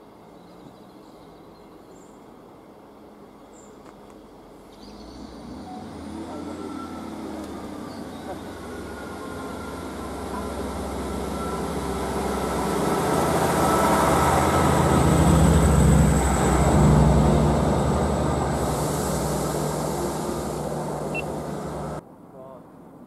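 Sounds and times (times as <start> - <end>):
diesel engine drone: 4.2 - 22.0
train wheel rumble: 5.8 - 22.0
steady high hiss: 8.5 - 22.0.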